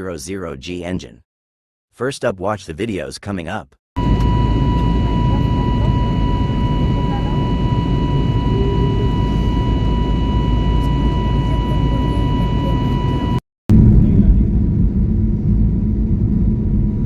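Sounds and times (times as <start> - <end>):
high whining engine tones: 4.0 - 13.4
jet engines rumbling: 4.0 - 17.0.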